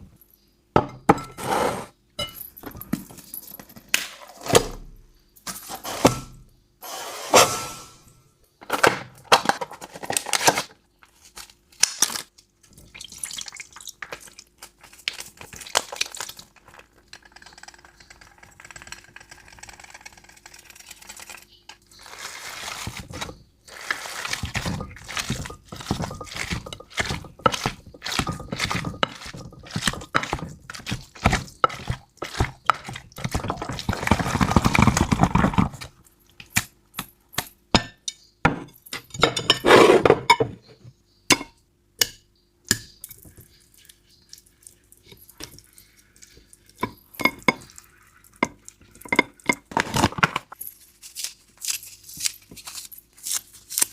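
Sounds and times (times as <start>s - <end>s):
bowls and lids clinking: 24.4s - 35.6s, 46.7s - 50.2s.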